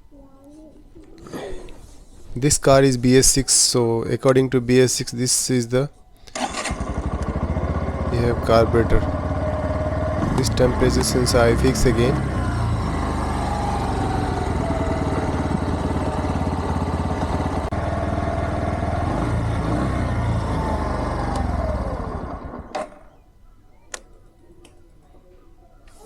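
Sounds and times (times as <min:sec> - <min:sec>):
motorcycle engine idling: 0:06.6 - 0:23.2.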